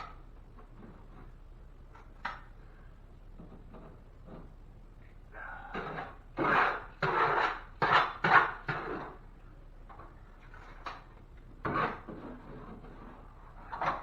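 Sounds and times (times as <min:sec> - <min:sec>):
drywall scraping and clattering: 0:03.4 - 0:04.7, 0:05.7 - 0:09.3, 0:09.9 - 0:14.0.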